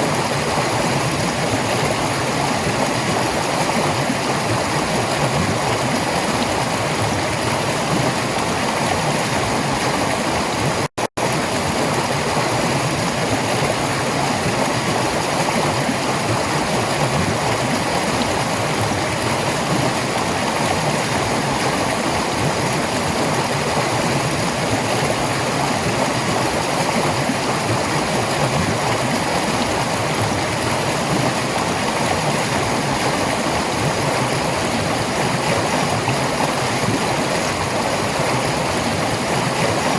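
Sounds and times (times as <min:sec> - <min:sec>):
stream water over rocks: 0:00.0 - 0:39.9.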